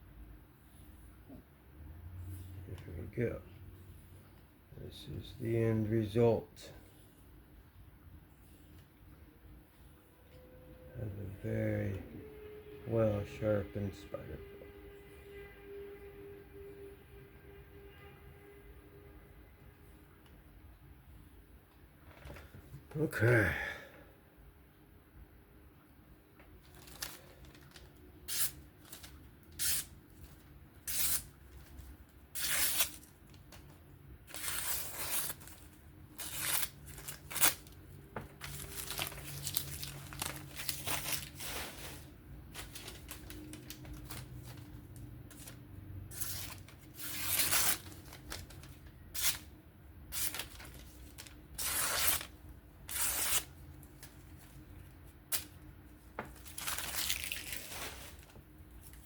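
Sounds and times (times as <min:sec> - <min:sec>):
blade slicing through paper: 0:32.4 - 0:33.6, 0:50.1 - 0:52.3, 0:52.9 - 0:53.5.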